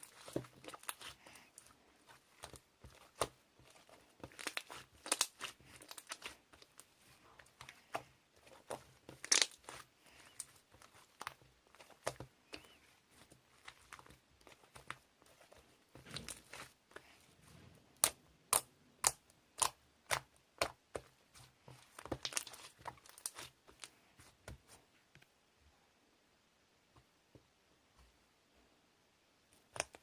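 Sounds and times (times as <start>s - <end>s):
rustling and crinkling: 0.0s - 18.0s, 20.2s - 25.3s.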